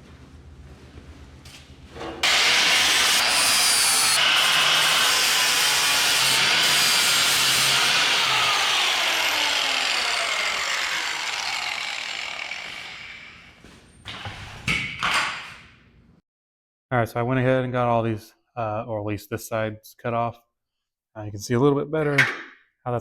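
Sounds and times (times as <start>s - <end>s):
power tool cutting steel: 2.2s - 13.6s.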